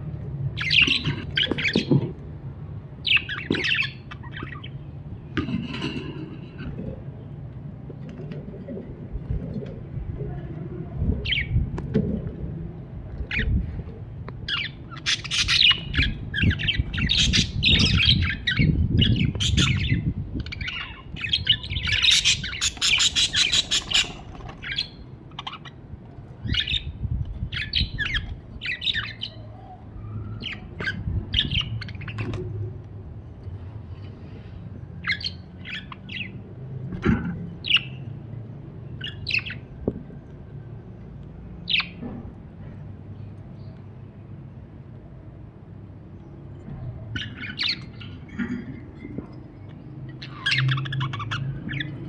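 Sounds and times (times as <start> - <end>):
low background rumble: 0.0 - 43.7
budgerigar chirping and chattering: 14.5 - 25.8.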